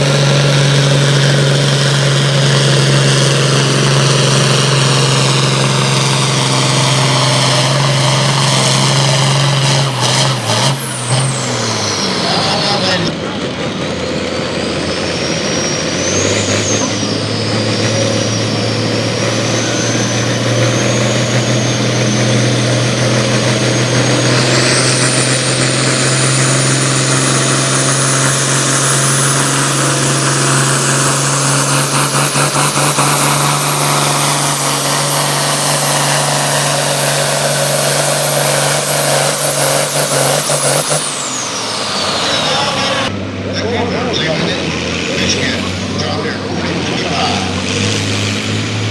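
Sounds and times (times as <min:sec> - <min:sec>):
engine running at full throttle: 0:00.0 - 0:48.9
high whine: 0:14.5 - 0:48.9.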